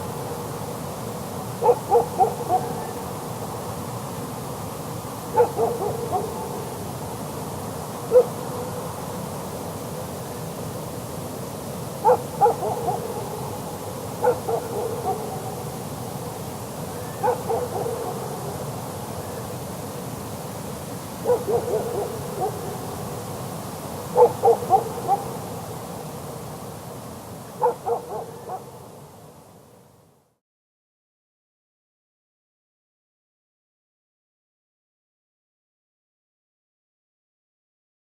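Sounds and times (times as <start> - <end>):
steady hiss: 0.0 - 30.3
distant dog barking: 1.6 - 3.0, 5.3 - 6.8, 8.1 - 8.8, 12.0 - 15.8, 17.0 - 18.7, 21.2 - 23.1, 24.1 - 25.7, 27.5 - 29.0.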